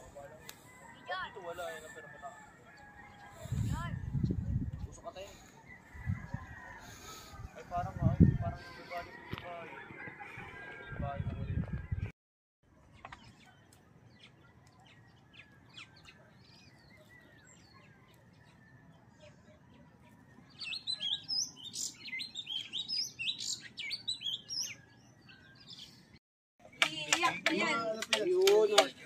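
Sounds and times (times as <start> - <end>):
small birds chirping: 12.8 - 29.0.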